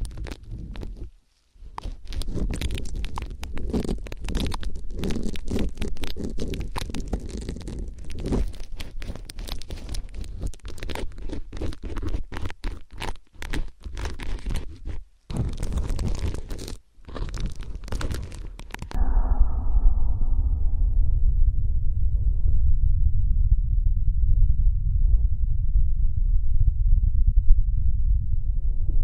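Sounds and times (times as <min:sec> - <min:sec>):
crackly scratching in ear: 0:00.0 - 0:19.0.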